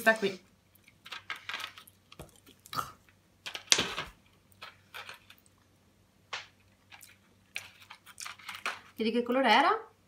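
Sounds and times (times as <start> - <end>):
person chewing: 1.8 - 3.2, 6.7 - 8.6.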